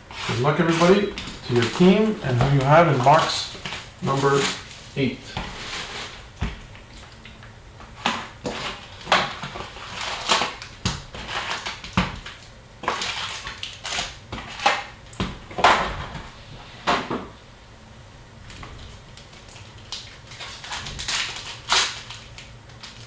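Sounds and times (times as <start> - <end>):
wrappers crinkling and tearing: 0.1 - 6.2, 8.2 - 14.9, 18.8 - 23.0.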